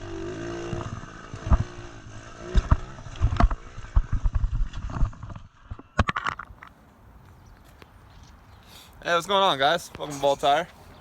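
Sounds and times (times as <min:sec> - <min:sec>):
pit bike engine running: 0:00.0 - 0:04.7.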